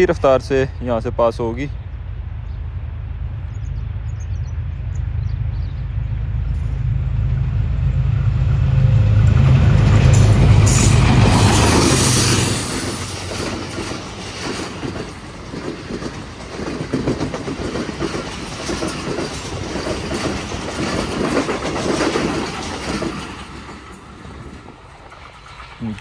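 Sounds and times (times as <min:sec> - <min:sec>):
train wheels clicking over track: 0:09.1 - 0:26.0.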